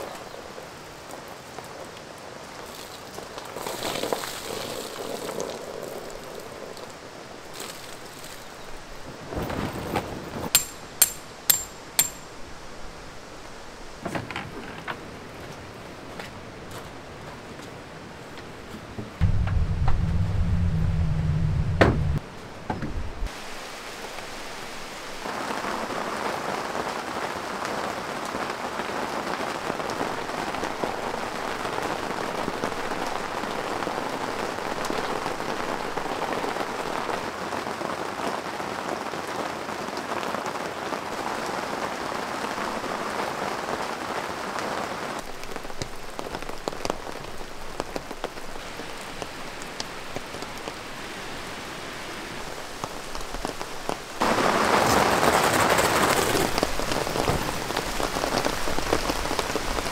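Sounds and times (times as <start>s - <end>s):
rain on tent fabric: 0.0s - 10.6s, 12.3s - 20.8s, 22.0s - 59.9s
low hum: 19.2s - 22.2s.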